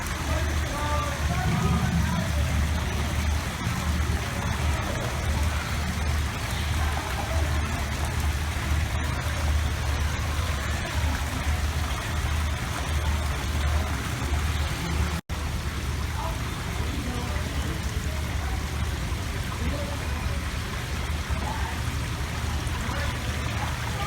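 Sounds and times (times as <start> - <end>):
low rumble: 0.0 - 15.2
running water rushing: 0.0 - 24.0.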